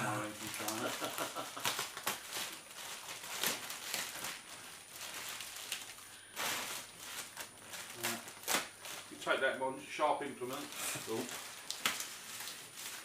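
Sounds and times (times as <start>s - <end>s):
cardboard and tape tearing: 0.0s - 9.2s, 10.4s - 13.0s.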